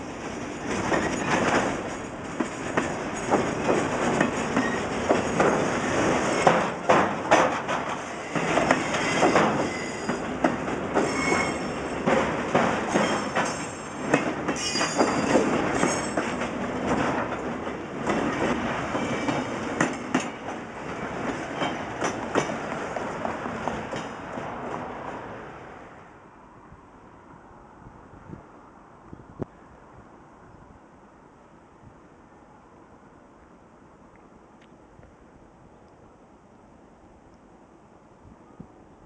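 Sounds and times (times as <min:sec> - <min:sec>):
train wheels clacking over rail joints: 0:00.2 - 0:24.9
high wheel squeals: 0:08.1 - 0:10.2, 0:11.0 - 0:11.9, 0:14.6 - 0:16.2.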